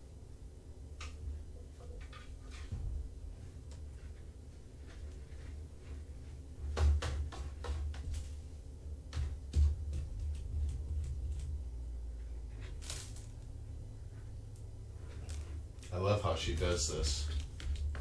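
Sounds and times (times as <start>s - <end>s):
steady low hum: 0.0s - 18.0s
light knocks and rustles: 1.1s - 8.4s.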